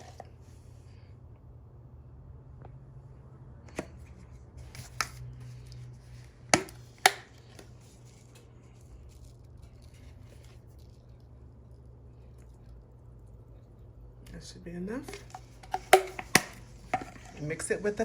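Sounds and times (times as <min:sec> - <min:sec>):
low steady hum: 0:00.0 - 0:18.0
kitchen containers knocking and clicking: 0:06.5 - 0:07.7, 0:15.0 - 0:17.7.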